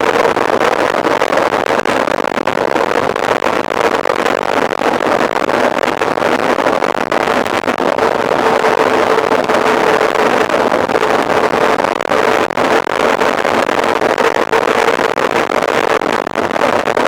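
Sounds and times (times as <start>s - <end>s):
wind buffeting microphone: 5.6s - 12.4s.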